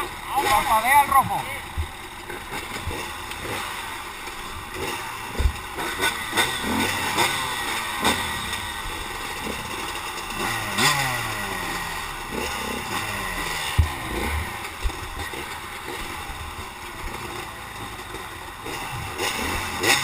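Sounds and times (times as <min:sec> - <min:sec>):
small racing engines revving: 0:00.0 - 0:20.0
sharp knocks and clatter: 0:01.8 - 0:08.2.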